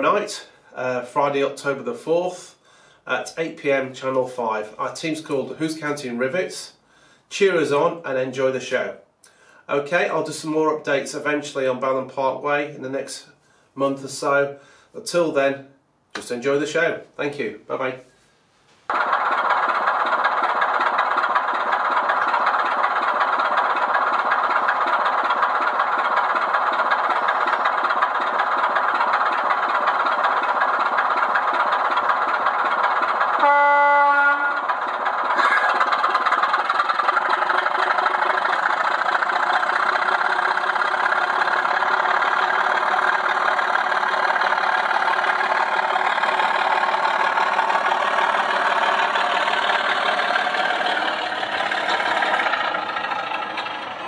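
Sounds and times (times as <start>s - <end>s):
diesel locomotive engine running: 18.9s - 54.0s
locomotive horn: 33.3s - 34.8s.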